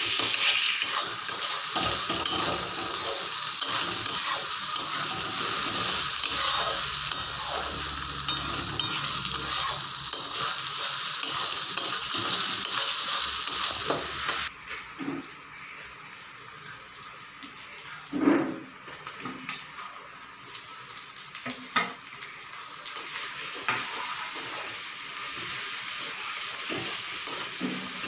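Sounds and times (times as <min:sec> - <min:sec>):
spatula scraping and stirring: 0:00.0 - 0:14.5
garlic sizzling in oil: 0:00.0 - 0:28.0.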